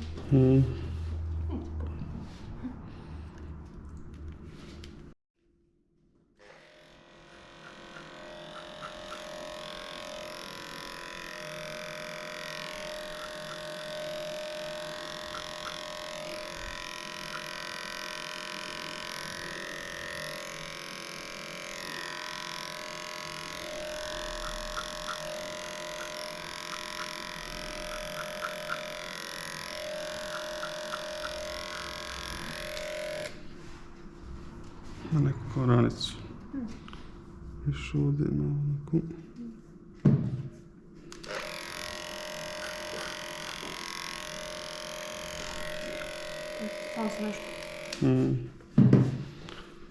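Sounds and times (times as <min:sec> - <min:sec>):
electric clippers running: 0:06.4 - 0:33.4, 0:41.1 - 0:48.5.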